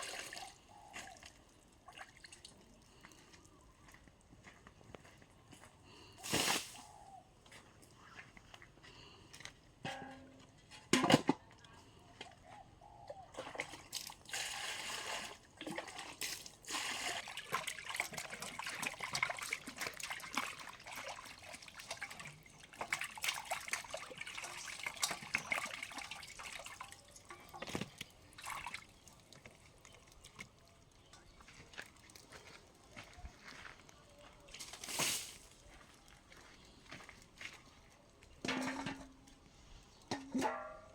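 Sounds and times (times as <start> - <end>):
water sloshing and dripping: 0.0 - 3.1, 13.3 - 32.4.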